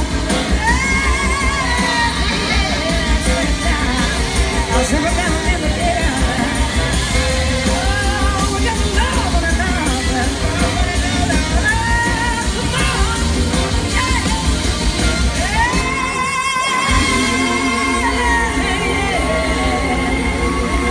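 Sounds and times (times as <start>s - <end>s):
blues-rock band playing: 0.0s - 20.9s.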